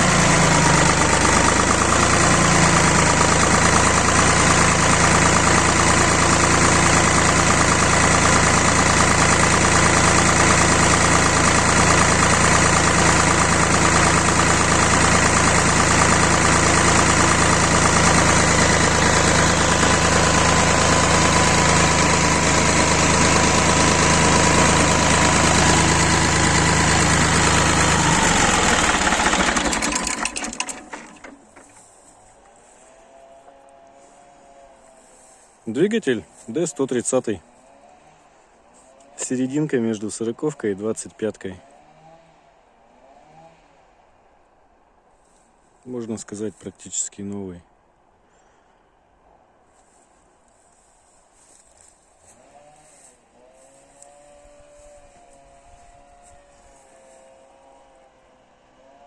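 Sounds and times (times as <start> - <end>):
diesel engine idling: 0.0 - 32.4.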